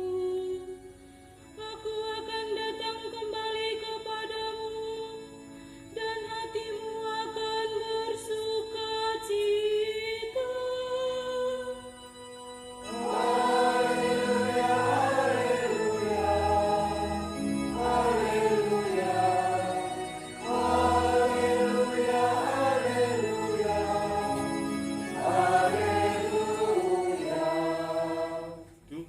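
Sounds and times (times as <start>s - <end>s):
choir singing a hymn: 12.8s - 28.7s.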